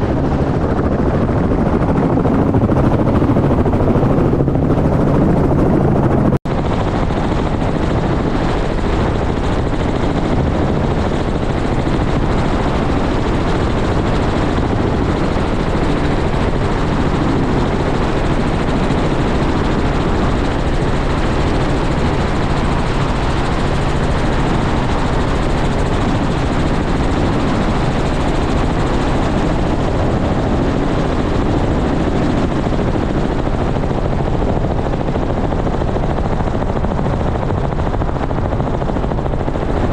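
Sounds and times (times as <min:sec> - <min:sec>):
helicopter rotor and turbine: 0:00.0 - 0:39.9.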